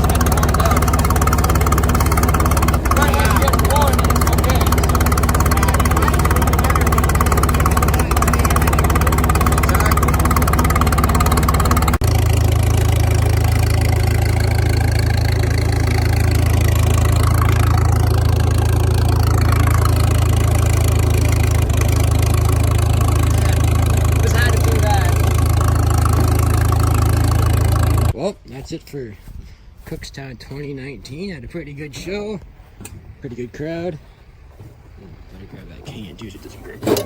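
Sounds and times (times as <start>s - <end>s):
engine idling: 0.0s - 28.2s.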